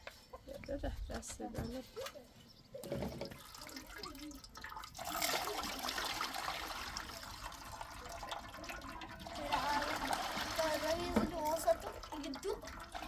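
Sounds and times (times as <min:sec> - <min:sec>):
water running: 0:02.8 - 0:13.0.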